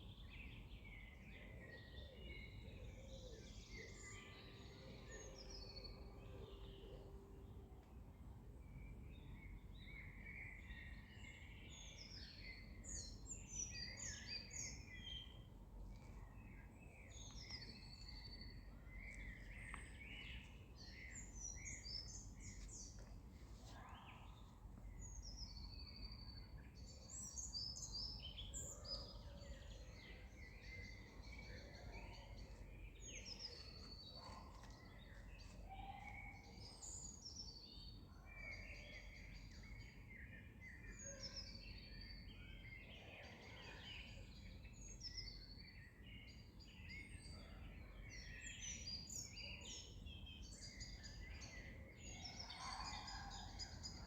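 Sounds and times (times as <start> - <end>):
birds chirping and trilling: 23.8 - 54.0.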